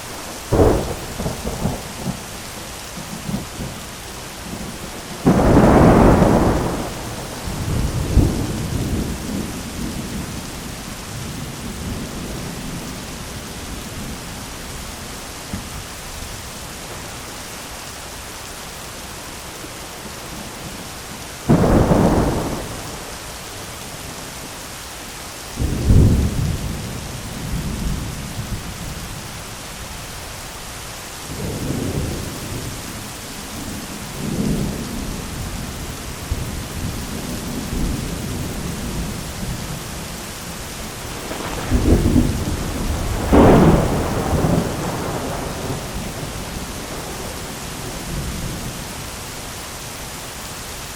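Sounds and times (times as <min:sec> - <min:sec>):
heavy rain falling: 0:00.0 - 0:50.9
thunder: 0:00.4 - 0:02.3, 0:04.5 - 0:10.4, 0:21.5 - 0:23.2, 0:41.1 - 0:48.7.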